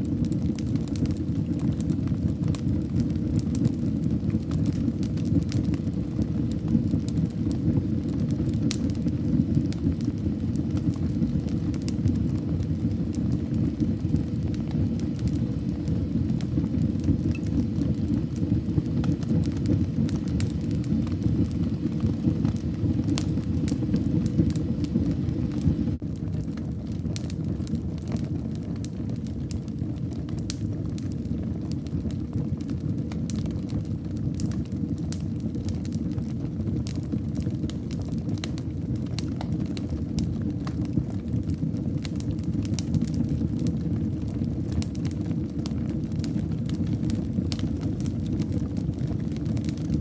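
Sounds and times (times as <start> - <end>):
fire crackles and pops: 0.0 - 50.0
low rumble of flames: 0.0 - 50.0.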